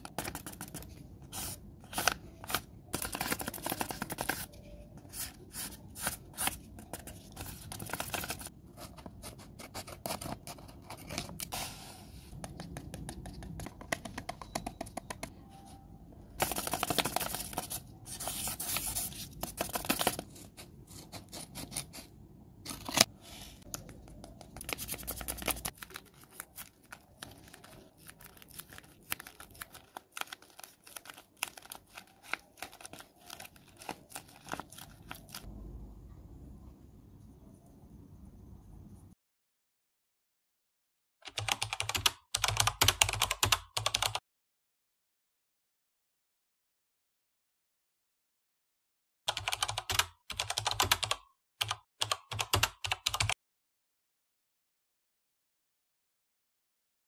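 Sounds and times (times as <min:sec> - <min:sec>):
paper rustling and crinkling: 0:00.0 - 0:11.9, 0:16.4 - 0:22.0, 0:22.6 - 0:35.5.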